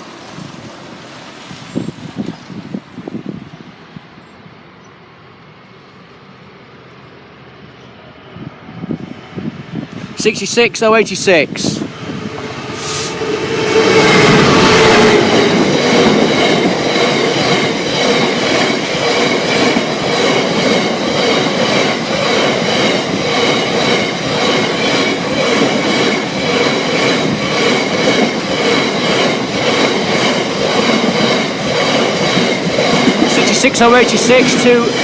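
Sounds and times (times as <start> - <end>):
diesel locomotive passing: 0.0 - 35.0
wheels clicking over rail joints: 15.2 - 35.0.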